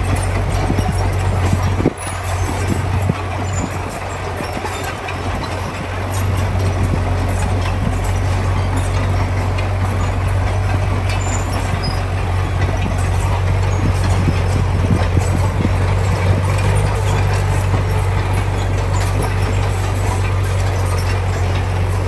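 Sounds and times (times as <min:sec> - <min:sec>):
diesel machinery running: 0:00.0 - 0:22.0.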